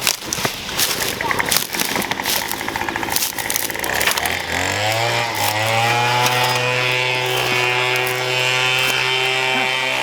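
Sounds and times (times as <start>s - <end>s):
small petrol engine starting and running: 0.0s - 10.0s.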